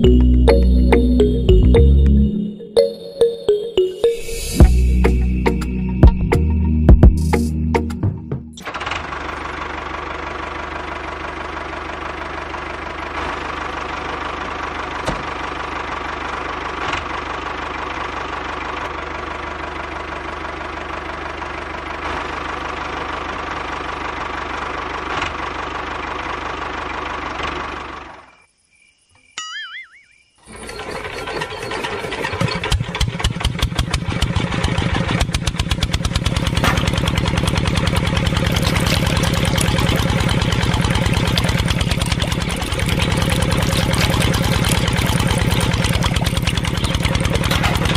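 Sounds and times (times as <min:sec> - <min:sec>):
small motor rattling: 0:30.4 - 0:47.9.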